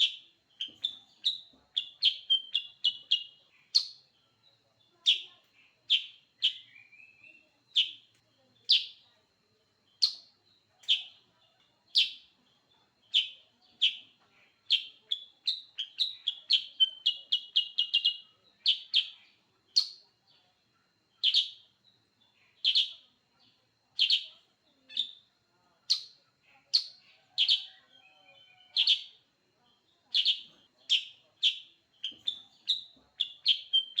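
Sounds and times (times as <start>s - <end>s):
bulbul chirping: 0.0s - 4.0s, 30.2s - 34.0s.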